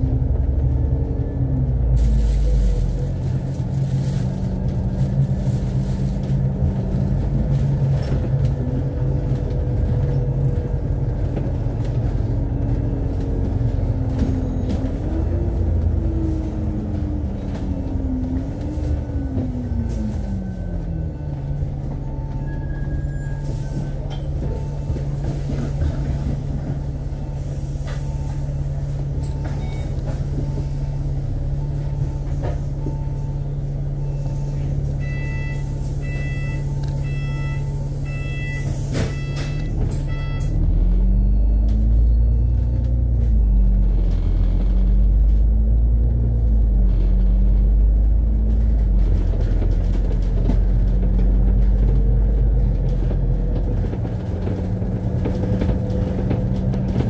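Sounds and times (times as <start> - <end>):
bus engine running: 0.0 - 57.0.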